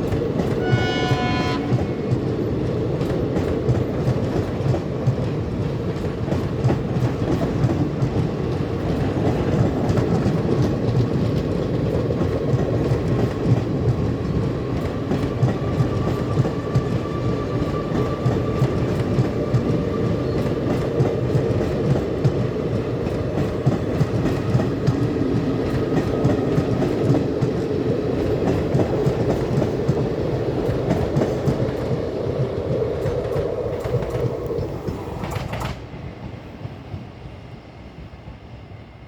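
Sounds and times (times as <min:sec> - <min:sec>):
train rumbling on rails: 0:00.0 - 0:39.0
locomotive horn blast: 0:00.6 - 0:02.0
wheels clicking over rail joints: 0:01.7 - 0:36.0.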